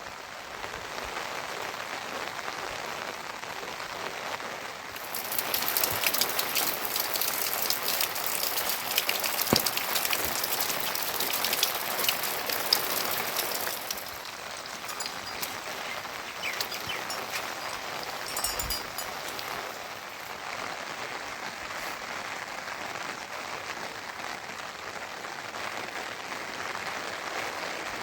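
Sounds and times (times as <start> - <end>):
rain falling: 0.0 - 28.0
raindrops ticking: 4.9 - 20.5.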